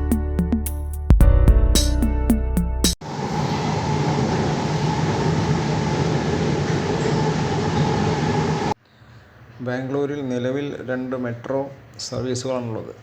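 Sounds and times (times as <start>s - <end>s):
train rumble and hiss: 3.0s - 8.8s.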